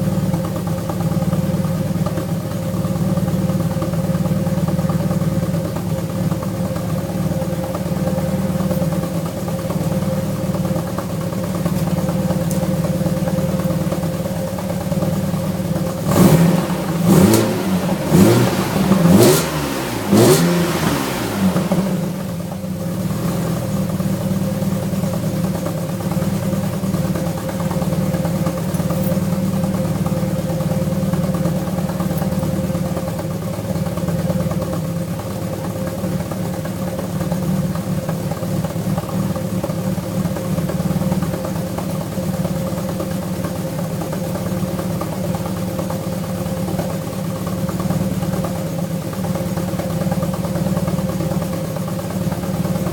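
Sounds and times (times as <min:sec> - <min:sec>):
car engine idling and revving: 0:00.0 - 0:52.9.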